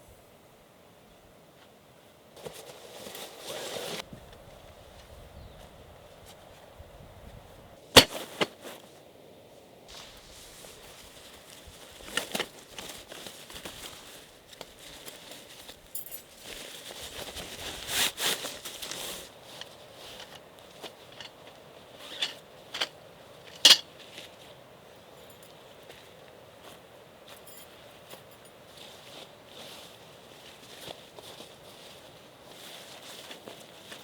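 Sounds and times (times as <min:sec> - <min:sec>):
rustling: 0:02.4 - 0:04.1, 0:08.0 - 0:09.0, 0:09.9 - 0:24.3.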